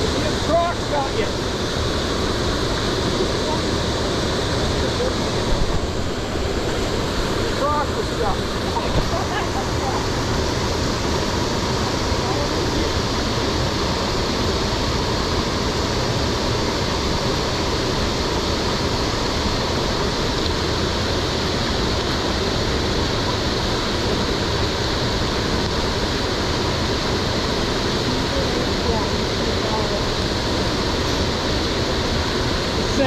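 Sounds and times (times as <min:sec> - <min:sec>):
rain: 0:00.0 - 0:05.7, 0:07.4 - 0:33.0
wind: 0:00.0 - 0:33.0.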